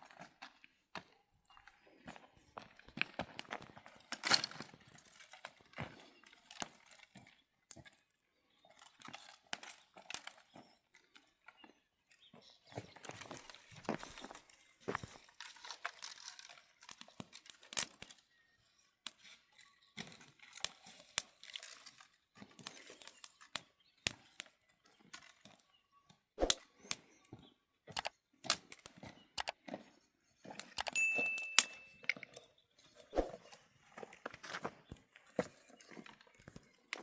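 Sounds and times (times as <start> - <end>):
short steady high tone: 31.0 - 32.0.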